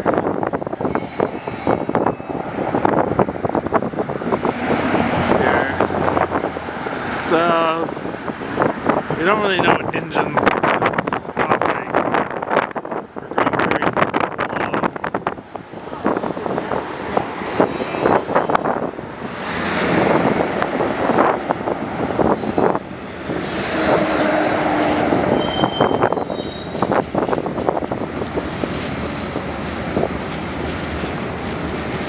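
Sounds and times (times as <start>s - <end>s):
high wheel squeal: 0.8s - 2.6s, 25.3s - 27.0s.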